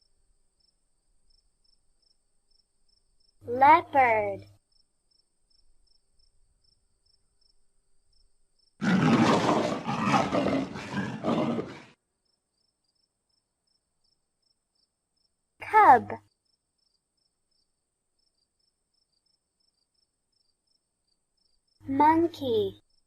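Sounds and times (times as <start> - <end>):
large animal roaring: 8.8 - 12.0.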